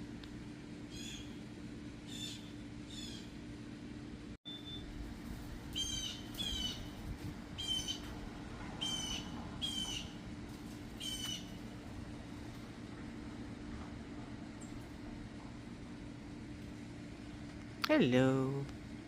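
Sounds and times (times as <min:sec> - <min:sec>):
low background hum: 0:00.0 - 0:19.0
bird harsh calls: 0:00.9 - 0:01.4, 0:02.1 - 0:03.4, 0:05.7 - 0:07.0, 0:07.6 - 0:08.1, 0:08.8 - 0:10.2, 0:11.0 - 0:11.6.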